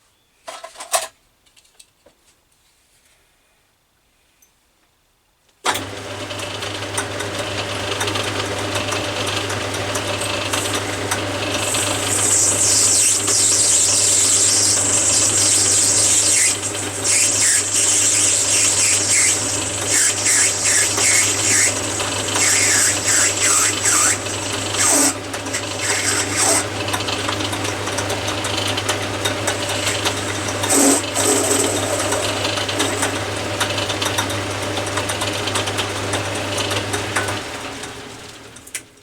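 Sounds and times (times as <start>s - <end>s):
lathe motor hum: 5.8s - 38.3s
blade squealing cutting metal: 11.6s - 26.7s, 29.6s - 33.2s.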